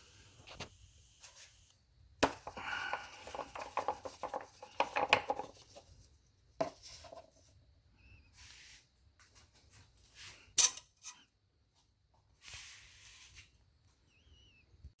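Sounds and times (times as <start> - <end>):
cap clicking and scraping: 2.2 - 5.8.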